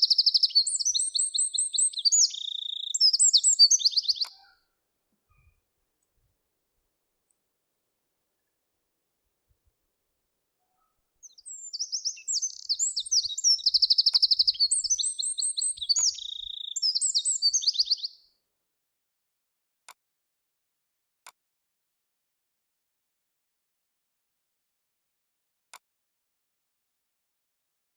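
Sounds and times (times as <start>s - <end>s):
songbird singing trills: 0.0s - 4.6s, 10.7s - 18.2s.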